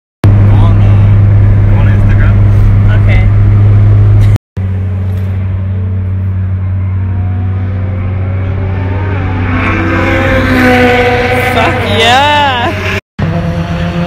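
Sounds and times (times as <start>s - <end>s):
steady low drone: 0.2s - 11.8s
car engine accelerating: 0.2s - 14.0s.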